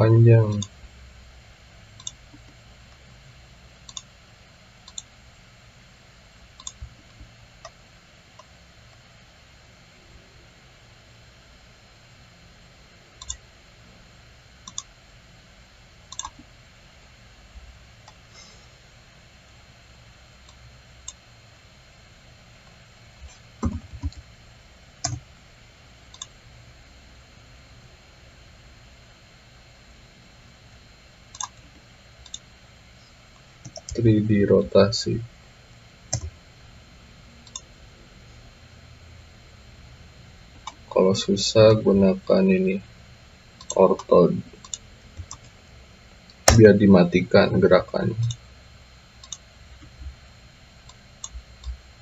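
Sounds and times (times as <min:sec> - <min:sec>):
faint room hiss: 0:00.0 - 0:52.0
low steady hum: 0:00.0 - 0:52.0
computer mouse clicks: 0:02.0 - 0:02.5, 0:03.8 - 0:04.1, 0:04.8 - 0:05.1, 0:06.6 - 0:07.8, 0:13.2 - 0:13.4, 0:14.6 - 0:14.9, 0:16.1 - 0:16.4, 0:25.0 - 0:25.2, 0:26.1 - 0:26.4, 0:31.3 - 0:32.4, 0:36.1 - 0:36.3, 0:37.4 - 0:37.6, 0:43.6 - 0:45.5, 0:49.2 - 0:49.9.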